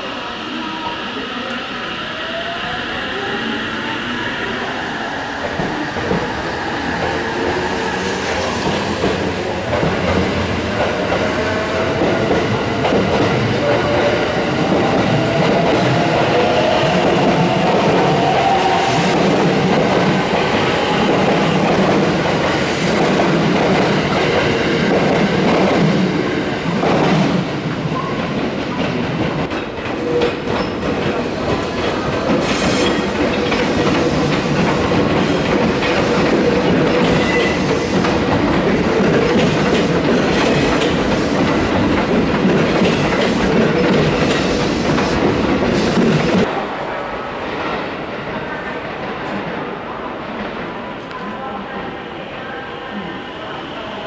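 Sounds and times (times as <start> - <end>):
train whine: 0.0 - 54.0
train wheels clacking: 26.7 - 46.5.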